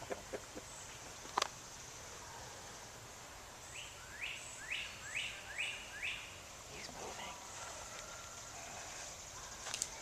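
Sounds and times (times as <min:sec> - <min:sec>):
steady high hiss: 0:00.0 - 0:10.0
bird chirping: 0:03.6 - 0:07.3.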